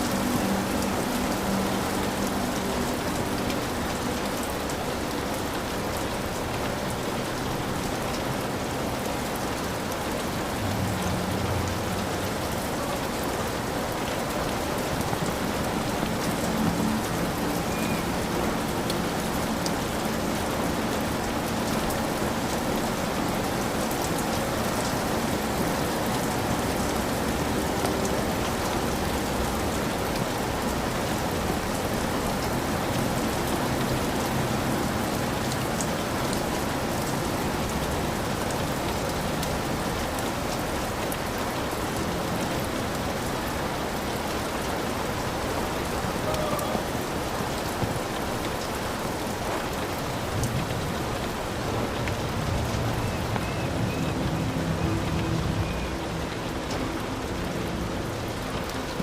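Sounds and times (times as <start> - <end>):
heavy rain on a hut roof: 0.0 - 59.0.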